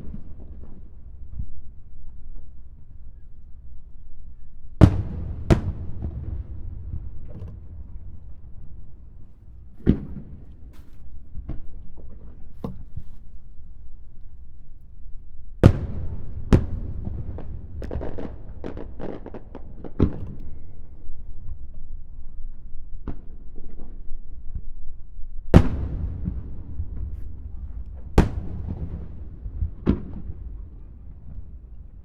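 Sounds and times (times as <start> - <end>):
crackling fireworks reports: 4.8 - 12.4, 15.6 - 20.4, 25.6 - 32.0
fireworks bursting: 4.8 - 12.4, 15.6 - 20.7, 25.6 - 32.0
low rumble of echo: 25.8 - 32.0.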